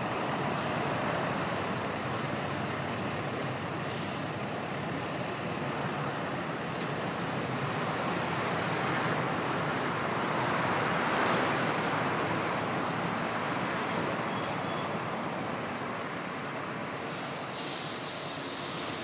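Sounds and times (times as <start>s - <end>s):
brief hiss: 16.3s - 19.0s.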